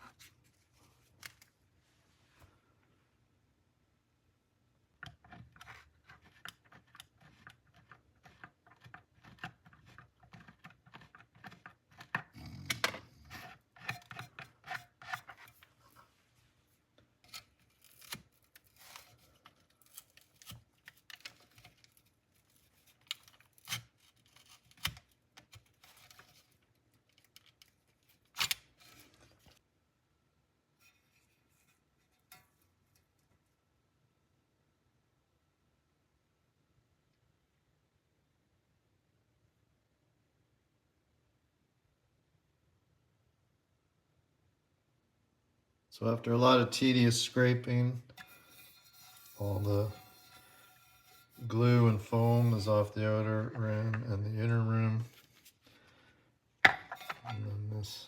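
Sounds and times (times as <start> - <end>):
hand tool scraping foam and glue: 5.2 - 16.0, 17.2 - 27.3, 47.4 - 54.2.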